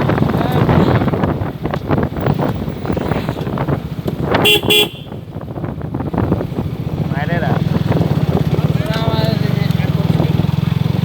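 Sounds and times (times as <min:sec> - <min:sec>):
wind noise: 0:00.0 - 0:10.5
motorcycle engine running: 0:00.0 - 0:11.0
vehicle horn toots: 0:04.4 - 0:05.3.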